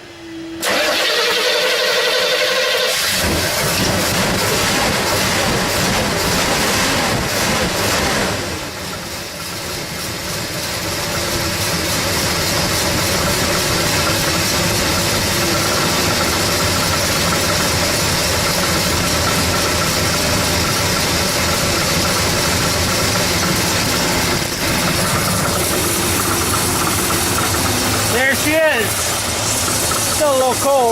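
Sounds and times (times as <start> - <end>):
car engine idling: 0.6 - 30.9.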